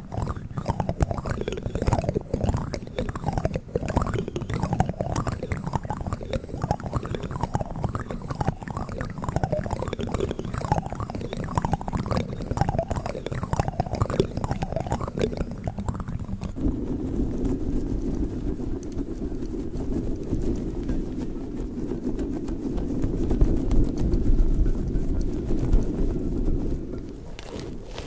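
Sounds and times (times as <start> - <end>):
plastic spoons clicking and scraping: 0.0 - 16.6
squishing and rubbing: 0.0 - 28.0.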